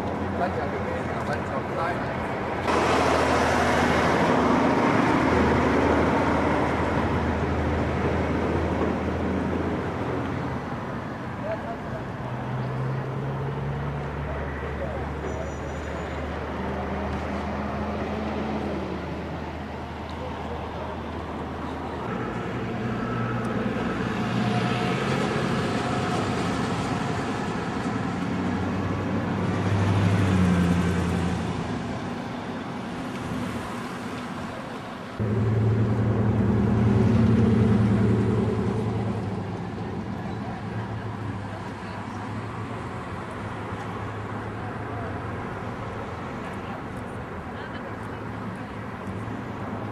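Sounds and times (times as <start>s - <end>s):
road noise: 0.0s - 49.9s
vehicle engines running: 0.0s - 49.9s
vehicles passing by: 0.0s - 49.9s.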